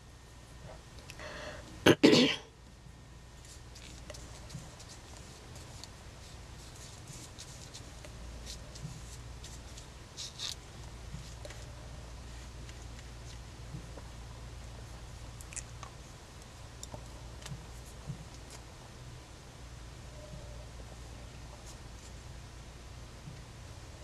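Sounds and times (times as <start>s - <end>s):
low steady hum: 0.0s - 24.0s
person coughing: 1.8s - 2.5s
faint scratching and rustling: 3.3s - 18.9s, 20.1s - 22.5s.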